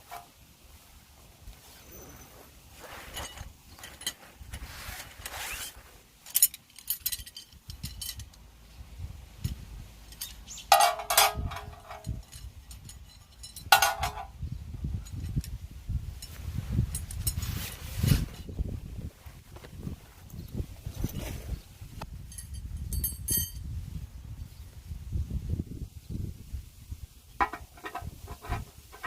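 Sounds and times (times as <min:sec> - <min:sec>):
metal cookware clattering: 0:10.7 - 0:12.2, 0:13.7 - 0:14.3.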